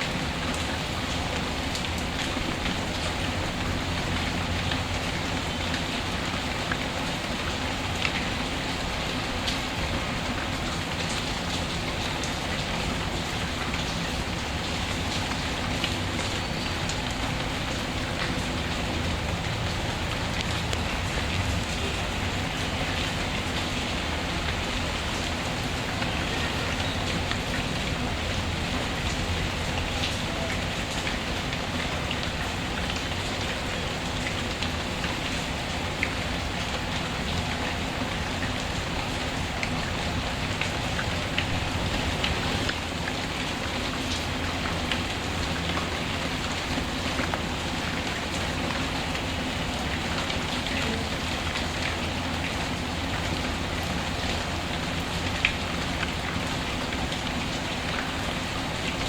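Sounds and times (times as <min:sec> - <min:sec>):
steady rain hiss: 0:00.0 - 0:59.0
fireplace fire crackling: 0:41.3 - 0:44.5.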